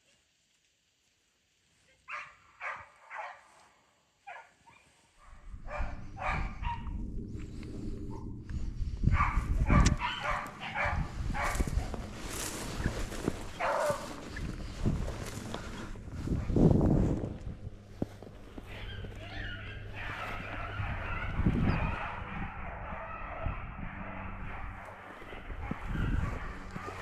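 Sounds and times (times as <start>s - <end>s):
hounds baying: 4.3s - 8.5s, 9.1s - 16.4s, 18.5s - 27.0s
low rumbling on microphone: 5.3s - 27.0s.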